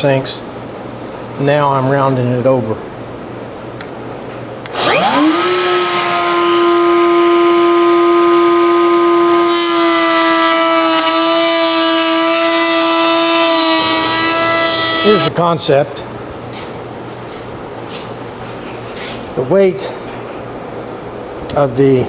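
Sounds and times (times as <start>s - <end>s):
router high whine: 4.7s - 15.3s.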